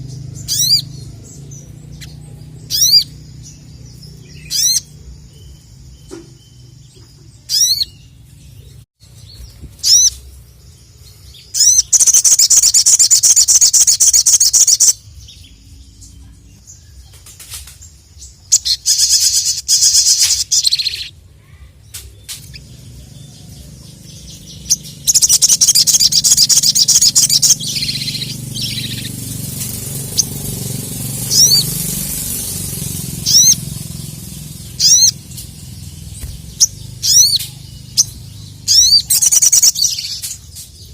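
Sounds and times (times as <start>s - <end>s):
songbird chirping and trilling: 0.0s - 40.9s.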